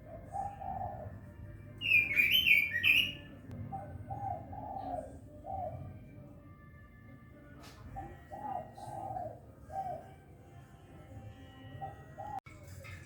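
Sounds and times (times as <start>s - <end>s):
bird singing warbled phrase: 1.8s - 5.9s.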